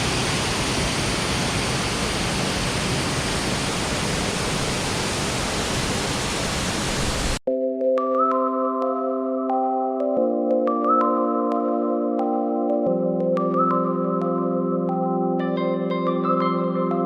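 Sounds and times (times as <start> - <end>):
waterfall rushing: 0.0 - 7.4
ambient synthesizer music: 7.5 - 17.0.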